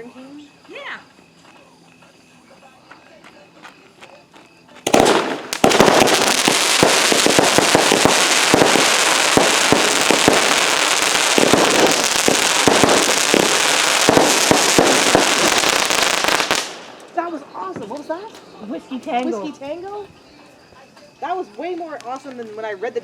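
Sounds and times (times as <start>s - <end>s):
firework crackling and bangs: 4.8s - 18.1s.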